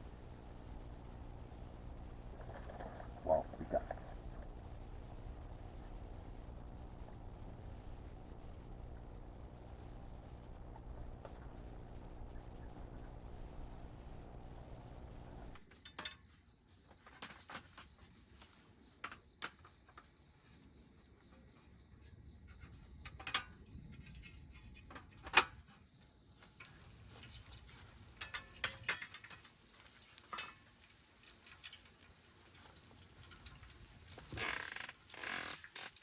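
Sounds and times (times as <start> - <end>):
camp dishes clinking: 28.2 - 29.5, 30.3 - 30.6.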